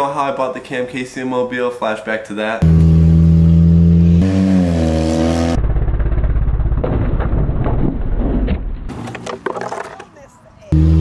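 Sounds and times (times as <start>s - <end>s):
car engine revving: 2.6s - 6.4s, 10.7s - 11.0s.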